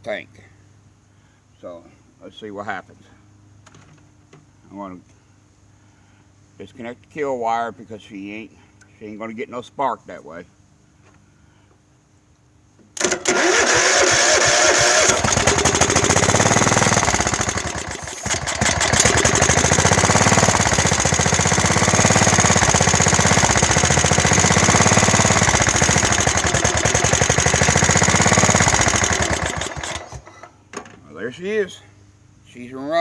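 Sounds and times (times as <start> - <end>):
lawn tractor engine running: 13.0 - 30.4.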